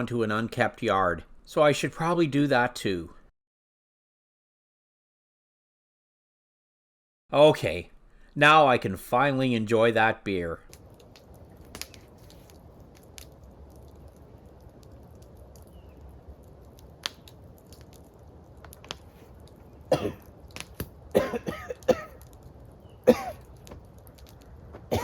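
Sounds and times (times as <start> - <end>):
faint clicks: 10.7 - 20.9, 23.4 - 24.6
man coughing: 19.9 - 20.3, 21.1 - 22.2, 23.0 - 23.4.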